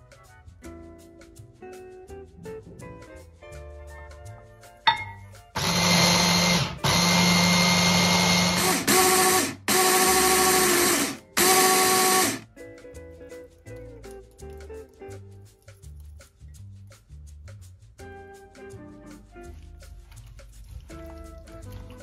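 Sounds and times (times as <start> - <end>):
quiet guitar music: 0.0 - 5.6, 12.5 - 17.0, 18.0 - 22.0
kitchen appliance motor bursts: 5.6 - 12.4.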